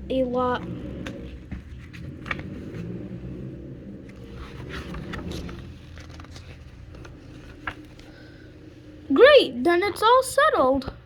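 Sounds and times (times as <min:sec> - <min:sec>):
low background rumble: 0:00.0 - 0:11.0
faint scrapes and clicks: 0:00.8 - 0:08.2.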